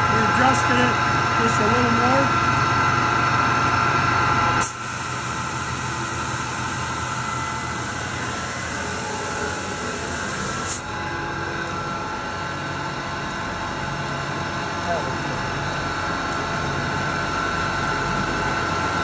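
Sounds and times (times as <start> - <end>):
belt sander humming: 5.1 - 13.4.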